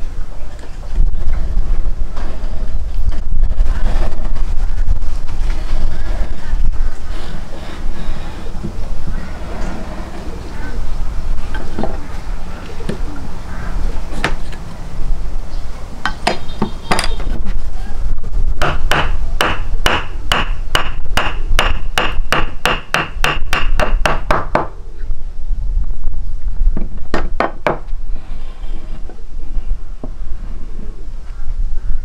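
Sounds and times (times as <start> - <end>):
low rumble: 1.0 - 16.0.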